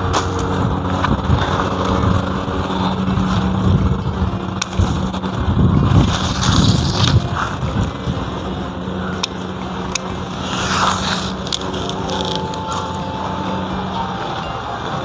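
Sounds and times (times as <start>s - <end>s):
wind buffeting microphone: 0.0s - 9.8s
steady low hum: 0.0s - 15.0s.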